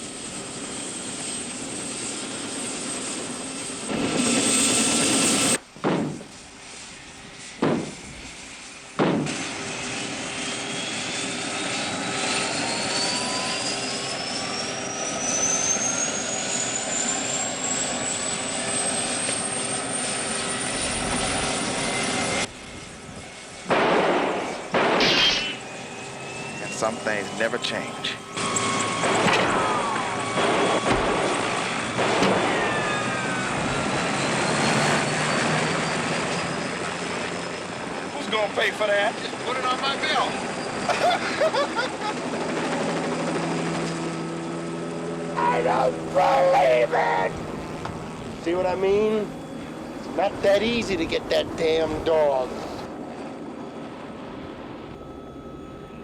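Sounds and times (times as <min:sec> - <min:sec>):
helicopter engine and rotor: 0:00.0 - 0:56.0
rising whine: 0:03.8 - 0:38.6.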